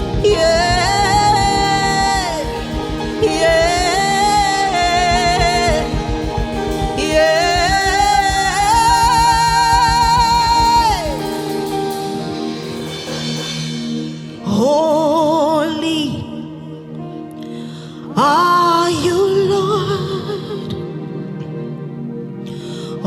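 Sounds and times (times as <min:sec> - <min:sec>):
steady low pulse: 0:00.0 - 0:14.0
sustained instrumental backing: 0:00.0 - 0:23.0.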